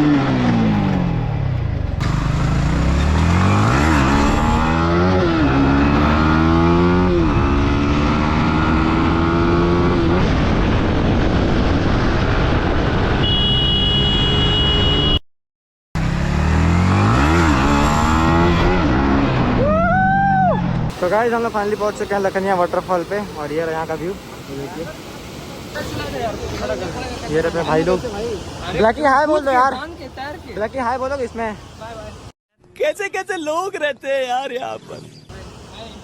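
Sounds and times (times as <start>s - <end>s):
motorcycle engine revving: 0.0s - 15.2s, 16.0s - 19.8s
road and wind noise: 0.0s - 15.2s, 16.0s - 32.4s, 34.1s - 36.0s.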